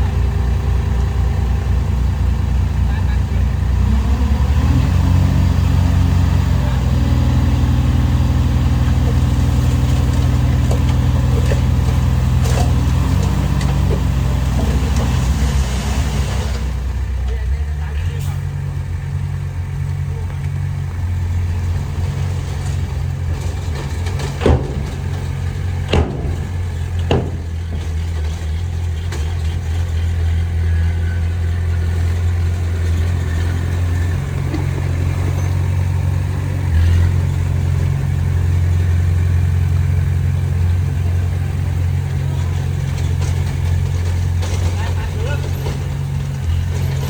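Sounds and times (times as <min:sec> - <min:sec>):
heavy machinery diesel engine running: 0:00.0 - 0:47.0
sharp knocks: 0:24.3 - 0:28.2.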